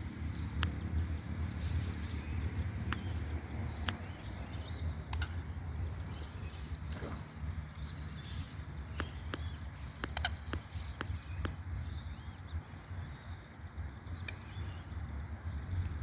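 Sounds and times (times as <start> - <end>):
sharp clicks: 2.9 - 5.8, 6.6 - 11.7.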